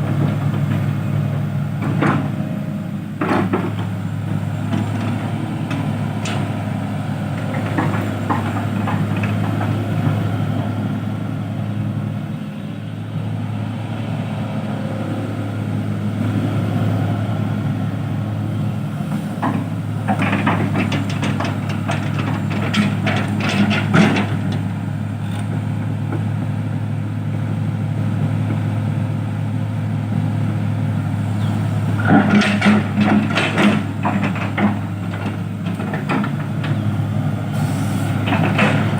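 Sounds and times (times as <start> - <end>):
heavy diesel engine running: 0.0 - 38.9
clattering knocks: 19.4 - 24.7, 32.0 - 36.8, 38.2 - 38.9.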